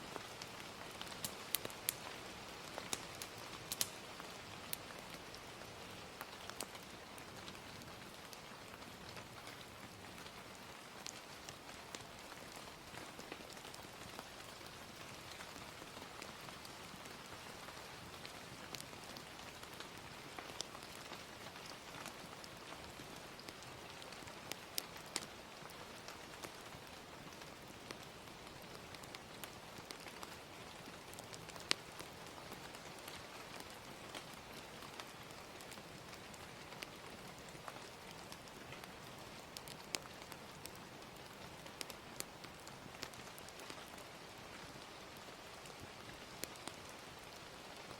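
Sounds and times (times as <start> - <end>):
gentle rain hiss: 0.0 - 47.9
fire crackling and popping: 0.1 - 47.9.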